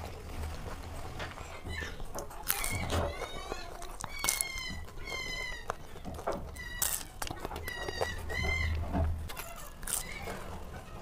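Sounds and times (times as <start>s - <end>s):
crunchy chewing: 0.0s - 11.0s
high-pitched squeaky chirps: 1.6s - 10.4s.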